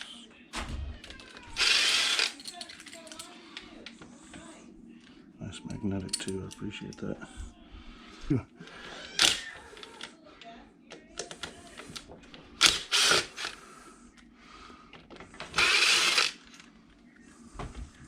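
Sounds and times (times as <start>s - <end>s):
metal parts clattering: 1.0s - 3.3s.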